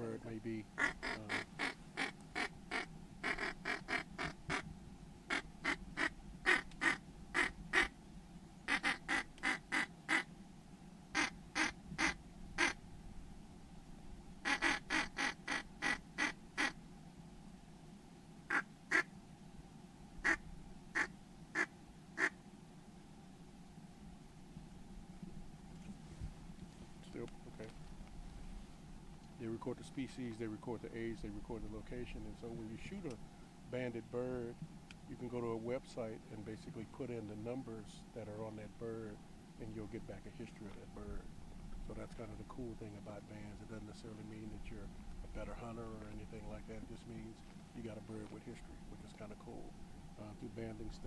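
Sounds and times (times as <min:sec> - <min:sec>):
duck quacking: 0:00.8 - 0:04.6, 0:05.3 - 0:07.9, 0:08.7 - 0:10.3, 0:11.1 - 0:12.8, 0:14.4 - 0:16.8, 0:18.5 - 0:19.1, 0:21.0 - 0:22.4.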